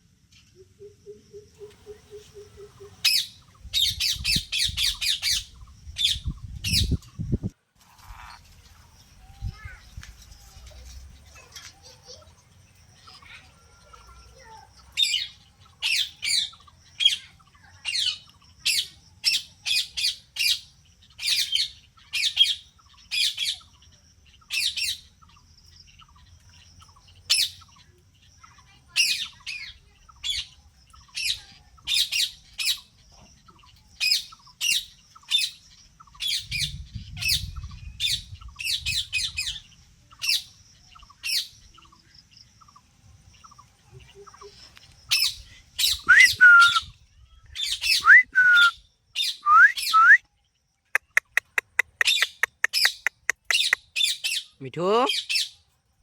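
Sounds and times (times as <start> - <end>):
parrot squawking: 51.0 - 54.1.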